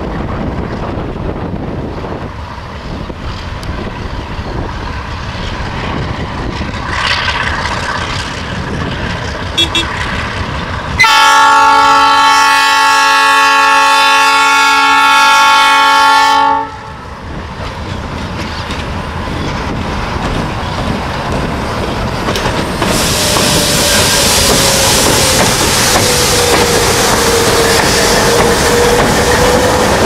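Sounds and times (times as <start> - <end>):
train wheels on rails: 0.0 - 30.0
locomotive engine: 0.1 - 12.5, 16.7 - 30.0
locomotive air horn chord: 9.6 - 10.0, 11.0 - 17.0.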